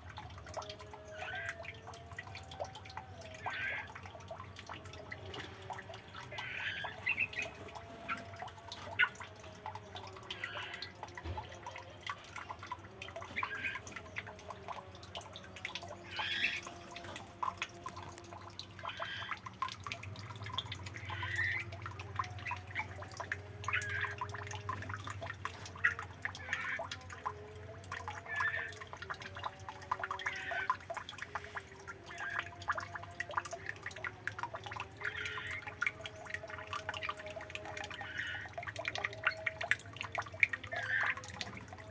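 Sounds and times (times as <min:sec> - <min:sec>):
birds chirping: 0:06.2 - 0:09.2.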